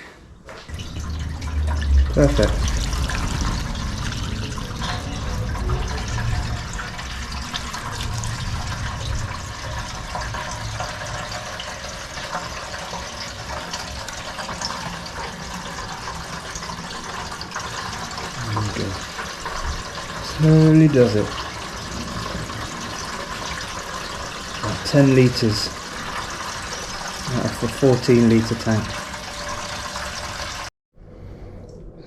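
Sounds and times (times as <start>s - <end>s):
fuel pouring into a tank: 0.5s - 30.7s.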